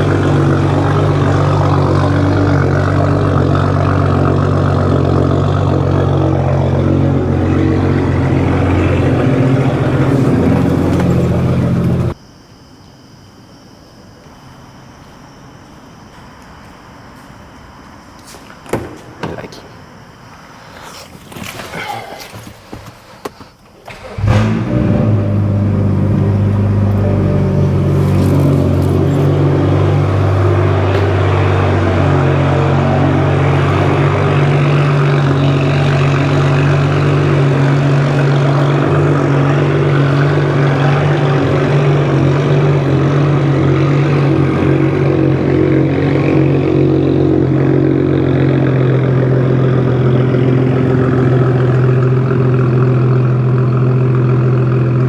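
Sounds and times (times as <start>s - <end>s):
car engine starting and idling: 0.0s - 12.2s, 23.6s - 55.0s.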